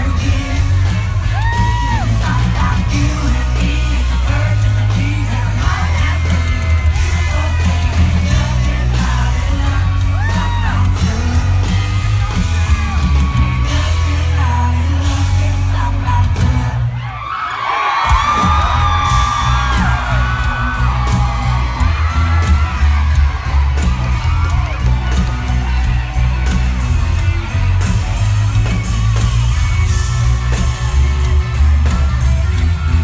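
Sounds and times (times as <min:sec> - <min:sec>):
man singing lead vocal: 0:00.0 - 0:17.3, 0:18.1 - 0:22.8
country rock music: 0:00.0 - 0:33.0
crowd yelling and whooping: 0:00.0 - 0:33.0.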